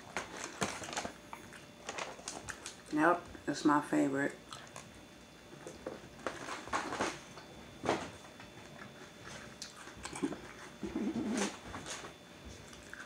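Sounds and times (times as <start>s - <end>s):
person chewing crunchy cereal: 4.4s - 5.0s, 8.6s - 11.6s, 12.6s - 13.0s.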